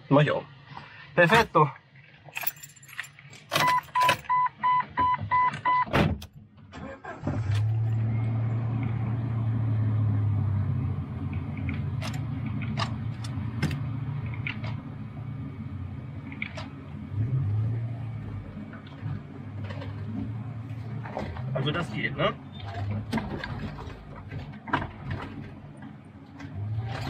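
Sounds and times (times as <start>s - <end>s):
car engine starting and running: 0.0s - 27.0s
electronic beeps: 3.6s - 5.9s.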